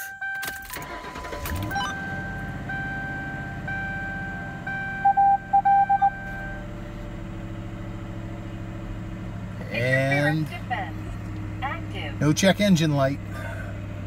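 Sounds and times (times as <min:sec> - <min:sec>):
car engine idling: 0:00.8 - 0:14.0
louder beeps: 0:01.6 - 0:06.6
door-ajar warning chime: 0:01.7 - 0:06.6.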